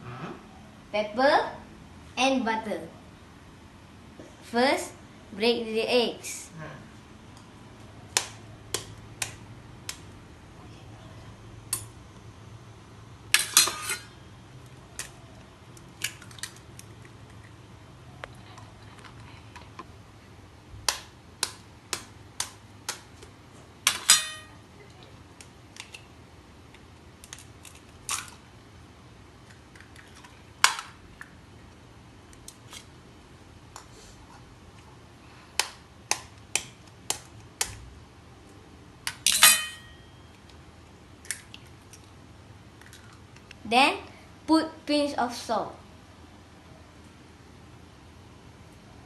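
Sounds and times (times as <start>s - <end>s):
eggs tapped and cracked on bowl: 20.8s - 23.2s, 35.6s - 37.8s.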